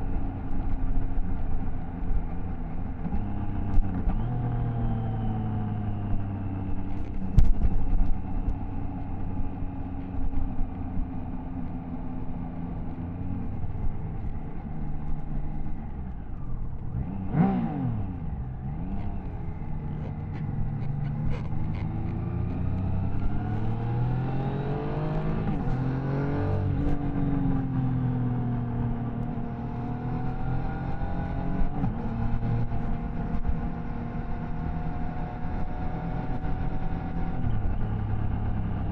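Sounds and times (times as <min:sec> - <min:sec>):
motorcycle engine revving: 0:11.7 - 0:38.9.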